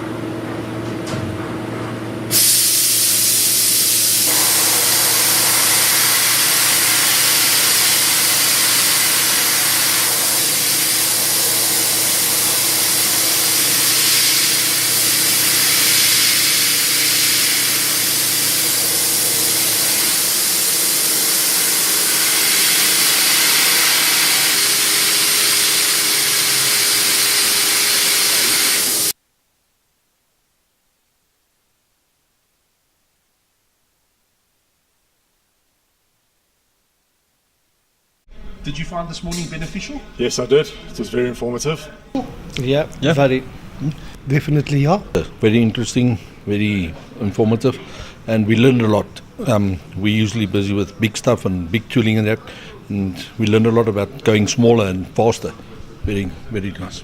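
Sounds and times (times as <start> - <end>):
loud spray hiss: 2.3 - 29.2
machine humming: 3.2 - 29.2.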